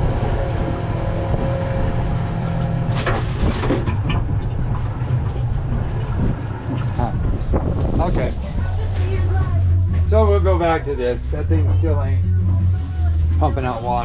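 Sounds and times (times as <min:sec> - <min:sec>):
outboard engine humming: 0:00.0 - 0:14.0
water against boat hull: 0:02.4 - 0:10.2.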